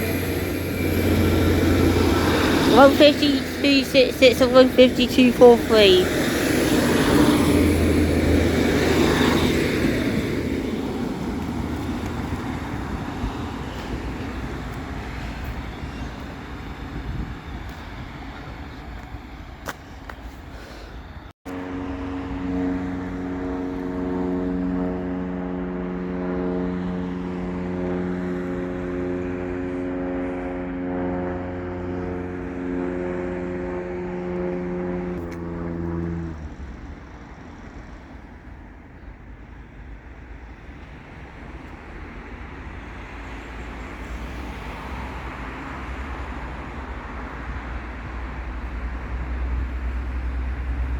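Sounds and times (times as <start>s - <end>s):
large vehicle engine running: 0.0s - 17.8s
engine idling hum: 21.5s - 39.0s.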